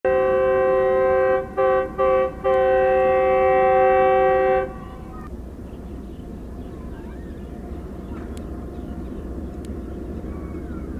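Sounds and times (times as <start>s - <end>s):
locomotive air horn: 0.0s - 5.2s
low engine rumble: 0.1s - 10.9s.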